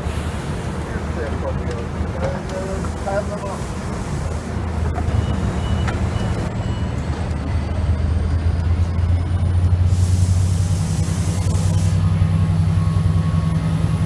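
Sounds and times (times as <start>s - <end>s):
hiss: 0.0s - 0.7s, 9.8s - 12.0s
rising whines of train: 0.0s - 14.0s
train hum: 0.0s - 14.0s
short high warning beeps: 5.1s - 7.1s.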